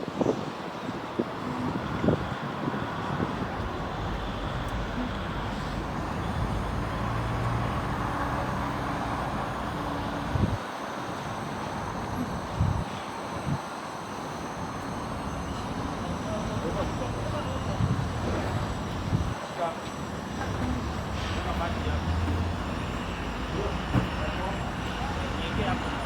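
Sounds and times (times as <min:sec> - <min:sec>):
vehicle running rumble: 0:01.7 - 0:10.6, 0:20.0 - 0:26.0.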